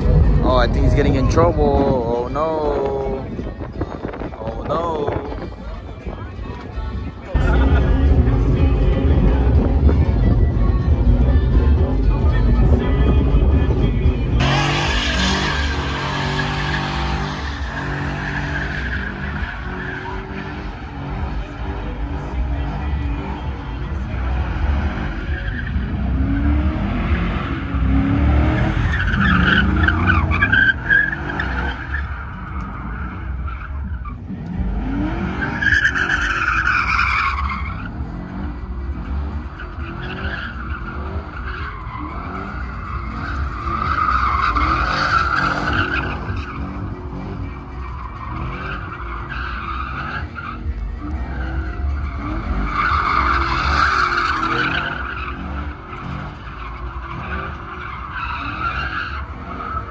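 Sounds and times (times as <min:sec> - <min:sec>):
tyres squealing: 0:28.5 - 0:34.3, 0:39.5 - 0:59.9.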